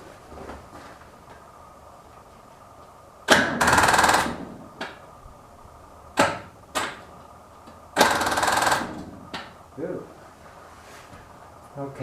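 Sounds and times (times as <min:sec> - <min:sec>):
tractor engine cranking: 0:03.3 - 0:04.6, 0:08.0 - 0:09.5.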